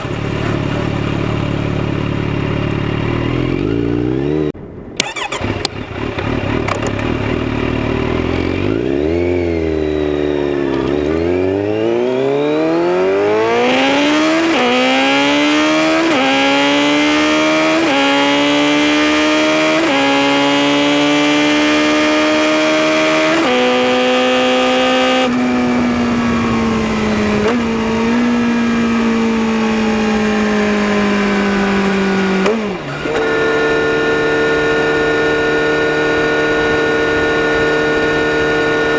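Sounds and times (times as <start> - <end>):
motorcycle engine revving through gears: 0.0 - 38.9.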